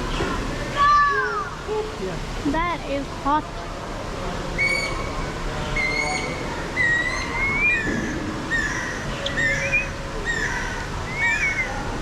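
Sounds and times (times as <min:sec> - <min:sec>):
bird whistling: 0:04.6 - 0:05.1, 0:05.8 - 0:11.8.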